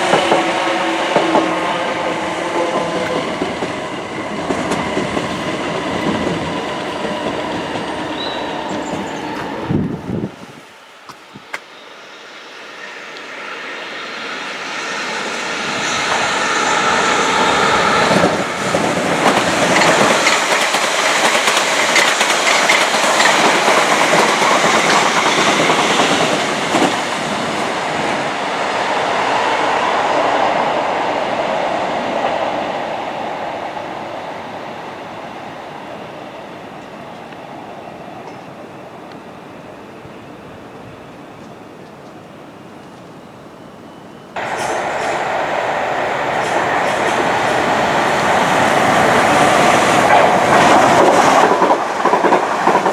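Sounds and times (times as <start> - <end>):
train passing: 0.0 - 52.9
wheels clattering over rails: 2.7 - 10.0.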